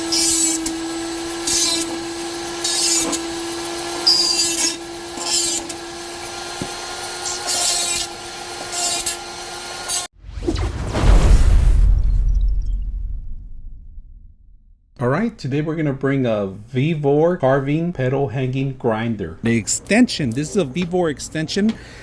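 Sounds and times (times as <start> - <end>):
harsh grinding bursts: 0.0 - 10.1
rotary grinder whining: 0.0 - 10.1
whoosh: 10.2 - 14.9.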